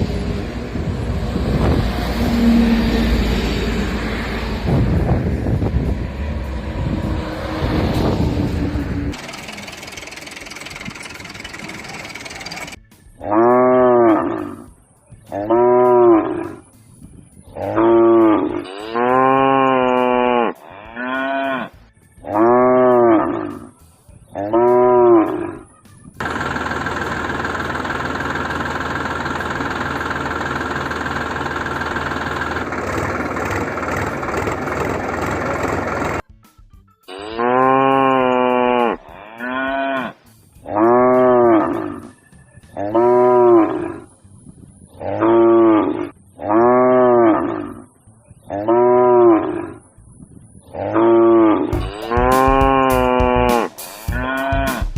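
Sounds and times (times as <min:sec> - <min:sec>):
cow mooing: 0:10.8 - 0:14.7, 0:15.3 - 0:16.6, 0:17.6 - 0:23.7, 0:24.4 - 0:25.6, 0:37.1 - 0:42.1, 0:42.8 - 0:44.1, 0:45.0 - 0:47.9, 0:48.5 - 0:49.8, 0:50.7 - 0:54.8.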